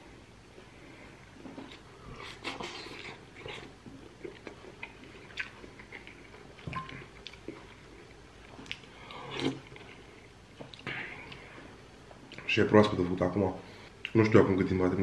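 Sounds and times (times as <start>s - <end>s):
mouth chewing with wet smacks: 1.6s - 10.0s.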